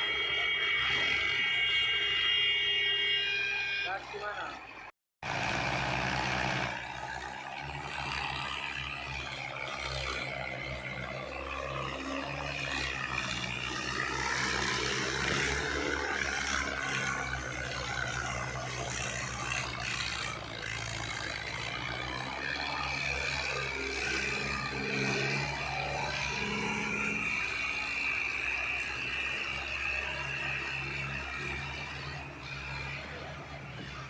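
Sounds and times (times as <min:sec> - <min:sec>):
tractor engine droning: 0:00.0 - 0:34.0.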